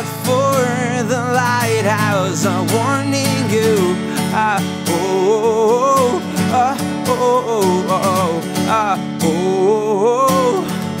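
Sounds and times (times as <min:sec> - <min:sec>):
acoustic guitar strumming: 0:00.0 - 0:11.0
wavering held melody notes: 0:00.2 - 0:07.4.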